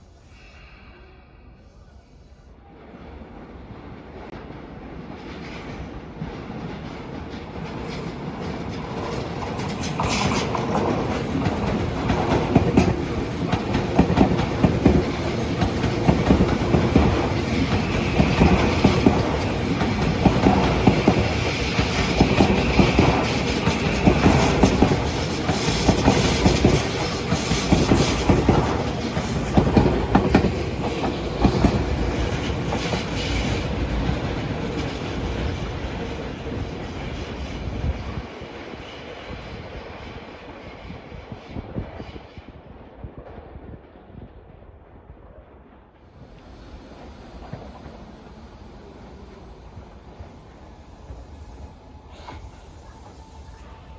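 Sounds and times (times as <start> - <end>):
train wheels clattering over rail joints: 5.3 - 37.4.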